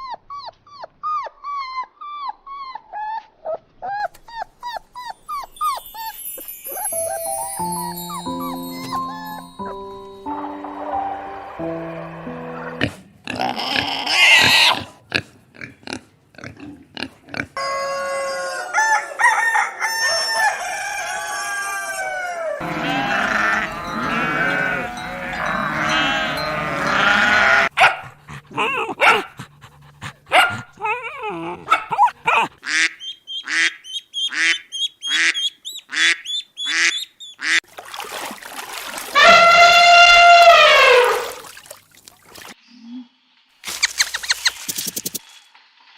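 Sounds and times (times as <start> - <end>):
loud long animal call: 21.9 - 27.7, 39.2 - 41.4.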